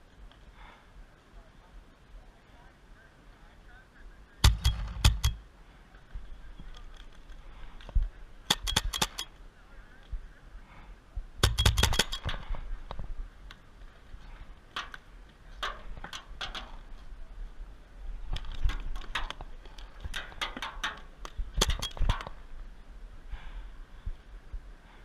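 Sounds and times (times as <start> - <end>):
paintball markers firing bursts: 4.4 - 5.4, 8.5 - 9.3, 11.4 - 12.6, 20.0 - 22.4.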